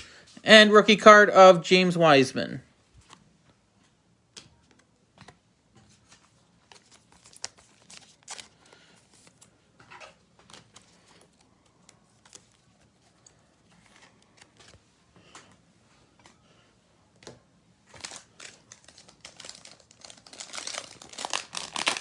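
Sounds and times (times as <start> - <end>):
trading cards and wrappers rustling: 4.5 - 15.6, 17.8 - 22.0.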